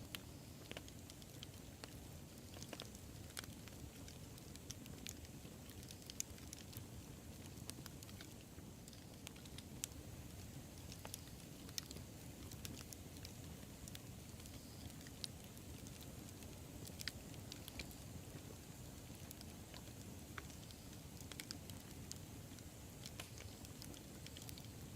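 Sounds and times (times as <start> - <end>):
burning wood crackling and popping: 0.0 - 24.9
low rumble of flames: 0.0 - 24.9.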